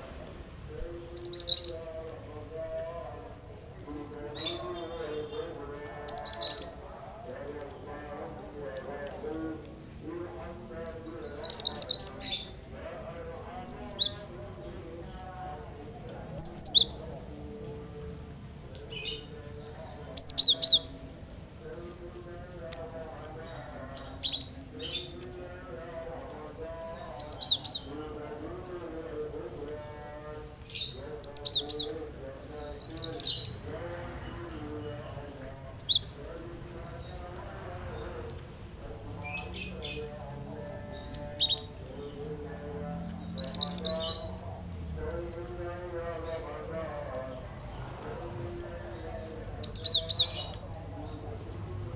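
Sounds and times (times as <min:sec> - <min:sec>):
bird chattering calls: 0:11.2 - 0:12.5, 0:13.6 - 0:14.2, 0:16.4 - 0:17.1, 0:20.2 - 0:20.9, 0:23.9 - 0:25.1, 0:27.2 - 0:27.9, 0:32.7 - 0:33.6, 0:35.5 - 0:36.1, 0:41.2 - 0:41.8, 0:43.4 - 0:44.3.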